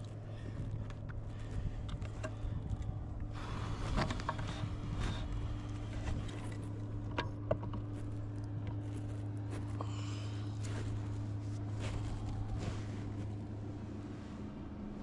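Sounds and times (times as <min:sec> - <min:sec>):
gear clicks and knocks: 0:00.0 - 0:10.0
steady low hum: 0:00.0 - 0:15.0.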